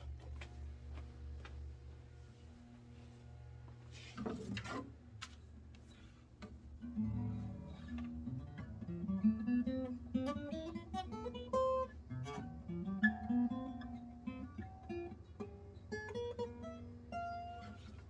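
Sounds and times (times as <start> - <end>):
acoustic guitar picked melody: 6.8 - 18.0.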